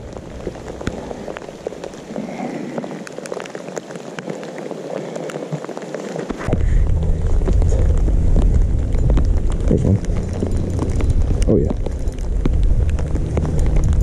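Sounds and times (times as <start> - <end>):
rain falling on water: 0.0 - 14.0
loud low rumble: 6.4 - 14.0.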